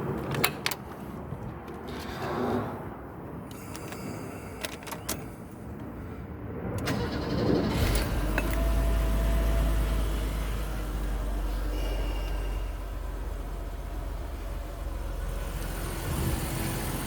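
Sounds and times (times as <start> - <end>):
engine idling: 6.8 - 17.0.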